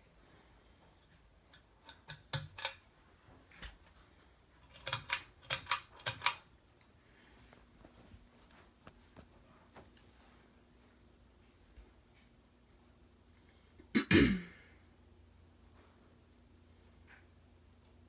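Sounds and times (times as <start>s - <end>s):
sharp clicks: 1.9s - 2.8s, 4.6s - 6.4s.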